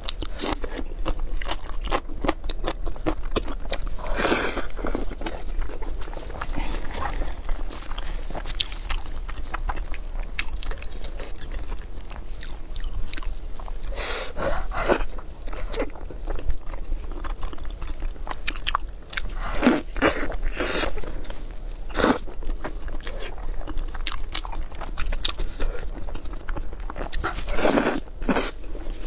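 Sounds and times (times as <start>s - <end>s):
person chewing and biting: 0.0s - 14.0s, 14.6s - 28.6s.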